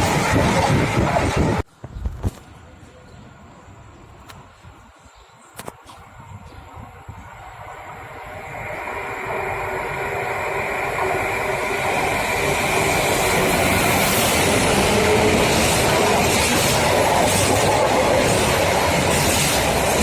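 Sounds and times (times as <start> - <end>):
train wheels rumbling on rail: 0.0 - 1.7, 7.2 - 20.0.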